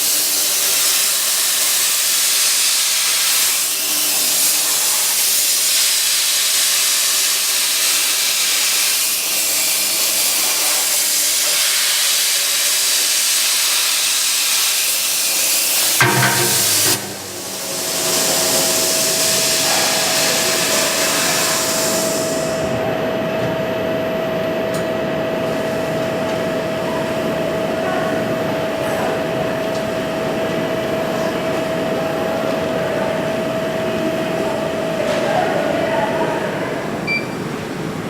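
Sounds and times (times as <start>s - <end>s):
loud hiss: 16.0s - 22.6s.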